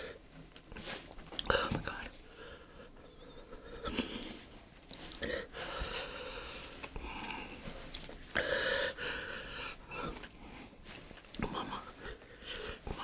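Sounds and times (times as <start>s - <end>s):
person gasping and breathing hard: 5.1s - 7.7s, 8.3s - 10.6s.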